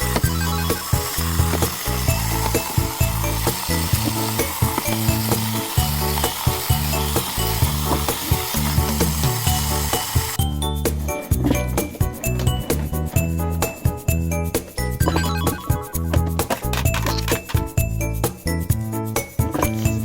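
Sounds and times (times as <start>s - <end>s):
toy trains clattering on track: 0.0s - 10.4s, 16.4s - 17.7s.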